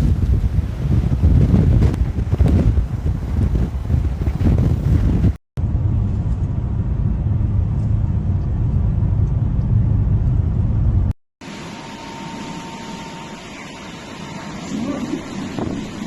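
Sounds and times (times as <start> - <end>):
gusty wind buffeting microphone: 0.0 - 11.1, 14.8 - 16.0
steady low rumble: 0.0 - 12.2.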